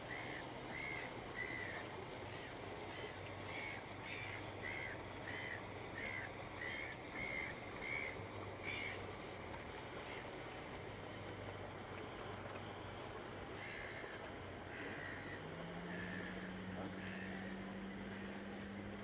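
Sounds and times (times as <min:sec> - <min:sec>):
bird calling: 0:13.6 - 0:18.8.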